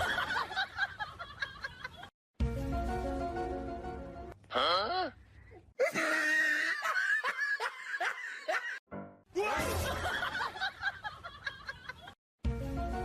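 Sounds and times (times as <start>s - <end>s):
background music: 2.4s - 4.4s, 8.9s - 10.9s, 12.4s - 13.0s.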